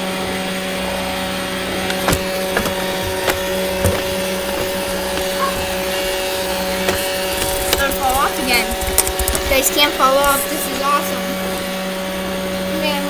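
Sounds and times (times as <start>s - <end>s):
robot vacuum knocks and rattles: 1.8s - 8.2s.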